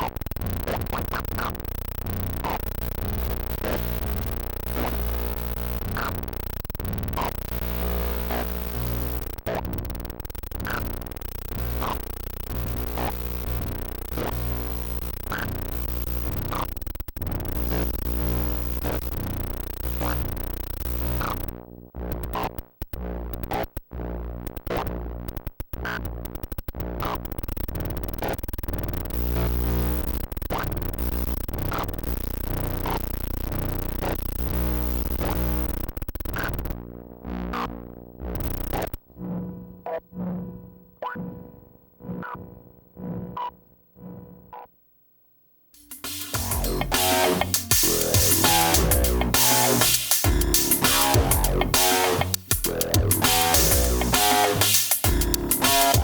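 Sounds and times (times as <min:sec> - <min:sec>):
sustained synthesizer bass notes: 0:45.8 - 0:56.0.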